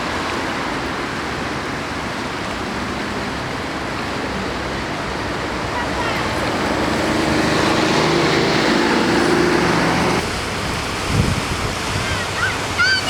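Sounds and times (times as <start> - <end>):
floodwater river rushing: 0.0 - 13.0
engine hum: 2.0 - 11.1.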